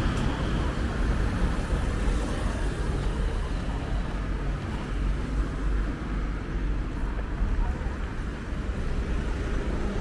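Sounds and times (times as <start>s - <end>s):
city traffic rumble: 0.0s - 10.0s.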